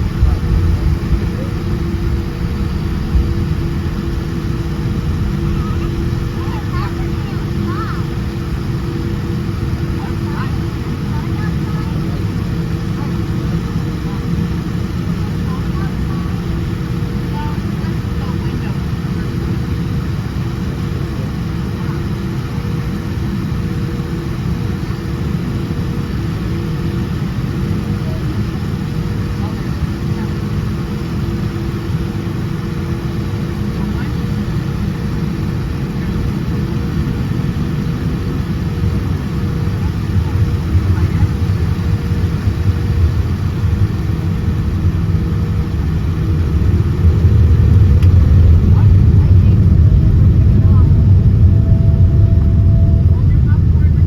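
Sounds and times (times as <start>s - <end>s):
airliner engines rumbling in cabin: 0.0s - 54.0s
faint steady hum: 30.9s - 54.0s.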